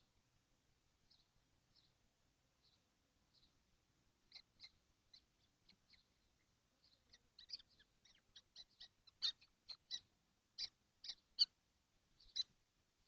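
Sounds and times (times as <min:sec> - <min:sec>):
young kestrels calling: 0:01.1 - 0:02.0, 0:02.6 - 0:03.6, 0:04.2 - 0:12.6.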